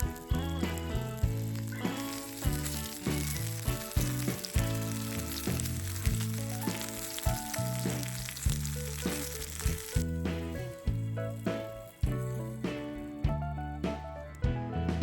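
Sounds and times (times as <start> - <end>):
food sizzling in frying: 0.0 - 13.3
background music with plucked melody: 0.0 - 15.0.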